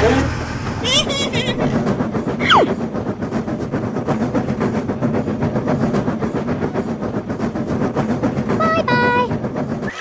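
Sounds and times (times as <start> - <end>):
train rolling on rails: 0.0 - 10.0.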